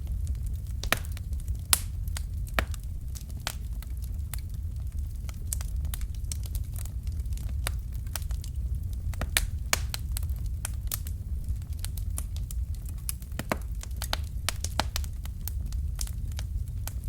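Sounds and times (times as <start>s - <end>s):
fire crackling in a fireplace: 0.0s - 17.0s.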